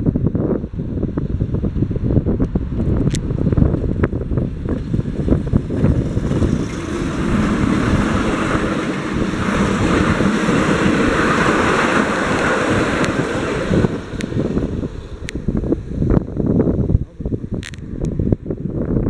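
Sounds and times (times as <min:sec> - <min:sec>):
train wheels rumbling on rail: 0:00.0 - 0:18.9
wind buffeting microphone: 0:00.0 - 0:19.0.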